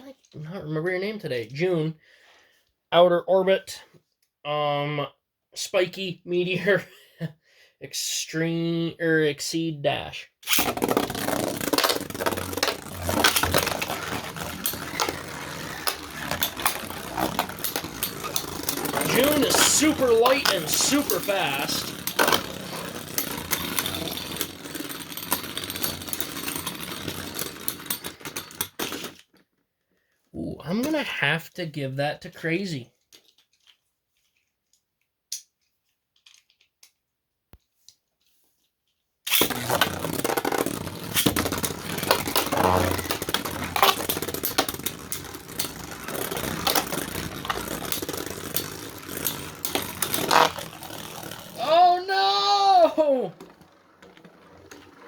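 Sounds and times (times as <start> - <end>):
spinning tops clashing clicks: 10.4 - 29.2, 39.3 - 51.8, 53.3 - 55.0
spinning tops whirring: 10.5 - 29.1, 39.3 - 55.0.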